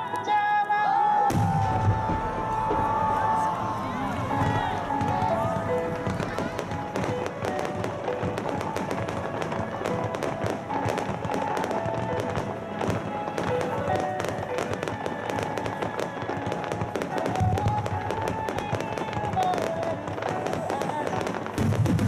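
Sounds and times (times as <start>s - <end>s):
fireworks bursting and crackling: 0.0s - 22.0s
music from loudspeakers: 0.0s - 22.0s.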